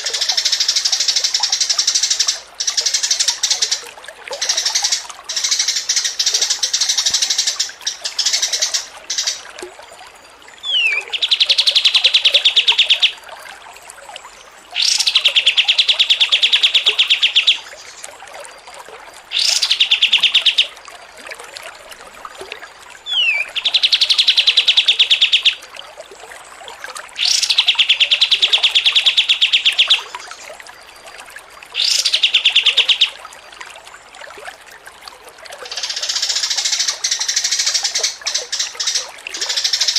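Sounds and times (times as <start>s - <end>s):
songbird singing trills: 10.6s - 13.2s, 14.8s - 18.1s, 23.1s - 25.6s, 27.2s - 30.4s, 31.8s - 33.2s, 35.6s - 39.9s.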